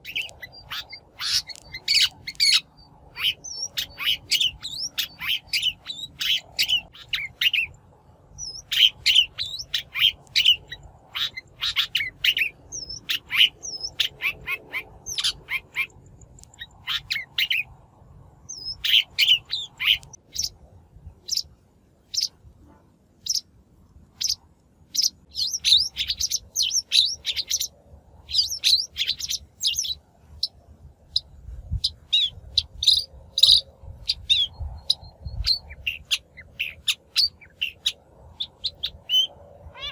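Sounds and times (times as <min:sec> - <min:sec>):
shrike chattering calls: 0:00.0 - 0:07.7, 0:32.1 - 0:39.9.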